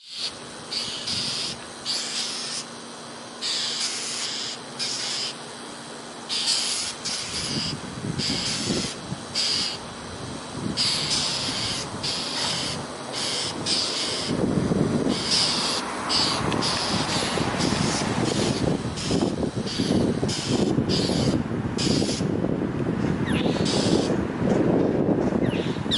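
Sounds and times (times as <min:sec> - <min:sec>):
small birds scolding calls: 0:00.0 - 0:09.9, 0:10.6 - 0:14.4, 0:15.0 - 0:22.3, 0:23.2 - 0:24.2, 0:25.4 - 0:25.9.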